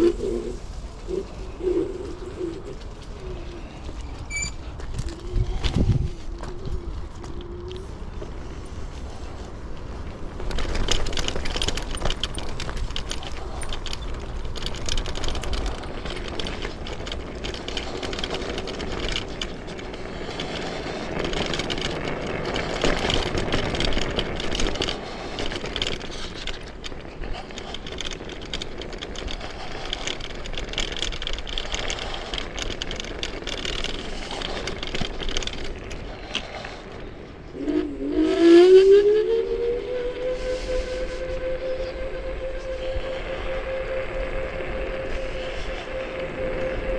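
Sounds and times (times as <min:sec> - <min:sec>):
wind and road noise: 0:00.0 - 0:46.9
dense rattle: 0:08.3 - 0:37.5
electric motor whine: 0:37.6 - 0:46.9.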